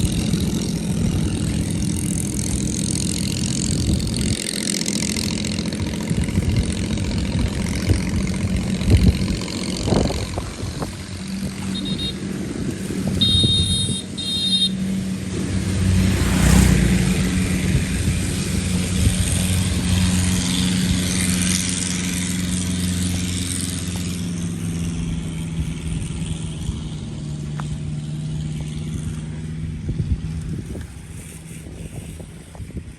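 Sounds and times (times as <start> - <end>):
vehicle engine running: 0.0 - 32.9
short high beeps: 13.2 - 14.8.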